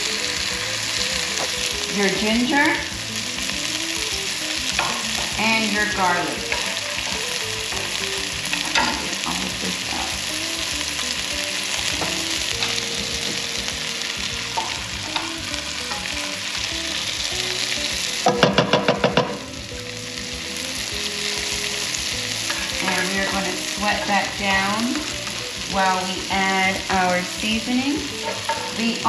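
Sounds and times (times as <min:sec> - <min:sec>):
onions sizzling in hot oil: 0:00.0 - 0:29.0
metal utensil scraping pan: 0:04.7 - 0:10.2, 0:11.7 - 0:13.5, 0:22.4 - 0:24.8, 0:28.1 - 0:29.0.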